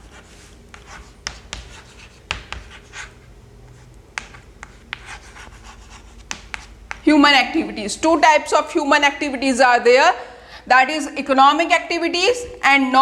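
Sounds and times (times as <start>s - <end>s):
pen scratching on paper: 0.0s - 7.1s.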